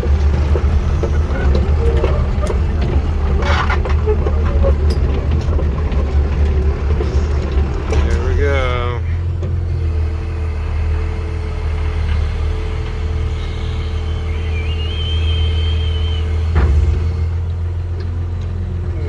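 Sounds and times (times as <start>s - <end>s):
excavator engine rumbling: 0.0s - 19.0s.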